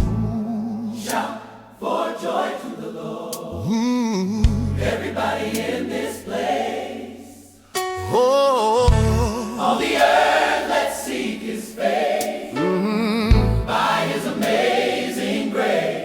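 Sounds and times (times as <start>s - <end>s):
sustained bass notes: 0.0s - 0.6s, 4.4s - 5.0s, 8.9s - 9.4s, 12.8s - 13.8s
choir singing wordless lines: 0.0s - 16.0s.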